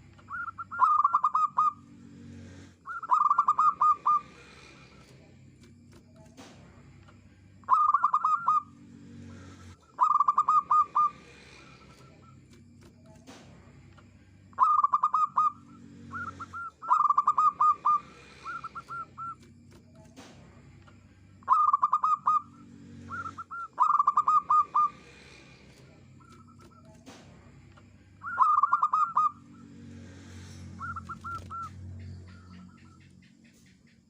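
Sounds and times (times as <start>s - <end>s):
dove rapid staccato cooing: 0.0s - 1.9s, 2.8s - 6.7s, 7.6s - 13.5s, 14.5s - 20.5s, 21.4s - 27.3s, 28.2s - 29.6s, 30.4s - 34.0s
faint low hum: 0.0s - 34.0s.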